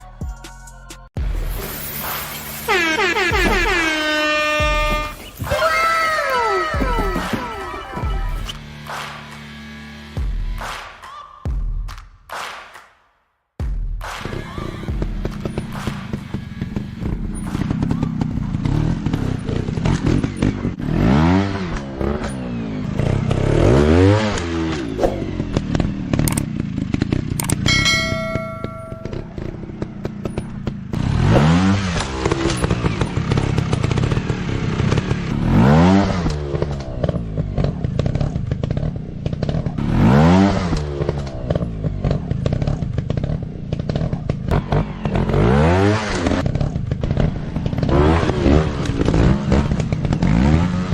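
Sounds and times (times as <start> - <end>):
motorcycle engine revving: 1.2 - 10.7, 14.2 - 50.9
brief steady tone: 27.7 - 29.5.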